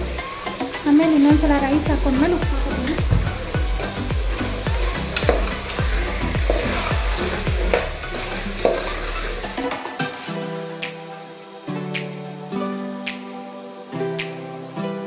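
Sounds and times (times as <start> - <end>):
background music with beat: 0.0 - 15.0
chicken sizzling in oil: 0.0 - 15.0
spoon scraping a pot: 4.7 - 9.5.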